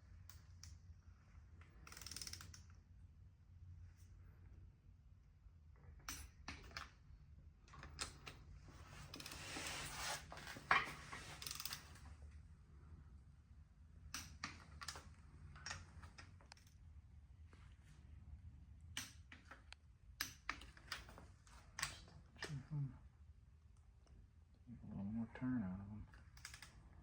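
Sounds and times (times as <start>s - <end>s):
tools and metal parts clicking: 1.8s - 2.6s, 10.7s - 12.0s, 26.4s - 26.7s.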